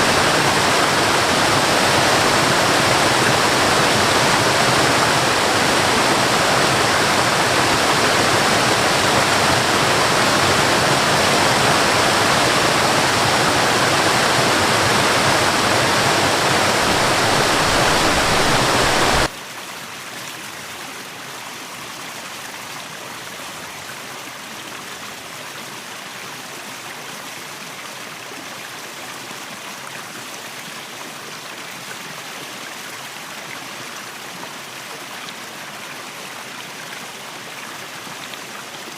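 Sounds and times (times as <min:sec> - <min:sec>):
running water: 0:00.0 - 0:19.3
waterfall rushing: 0:00.0 - 0:19.3.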